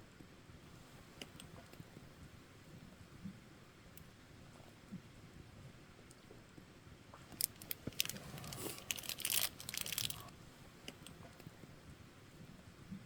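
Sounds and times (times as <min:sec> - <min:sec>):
campfire crackling and popping: 0:07.2 - 0:10.3.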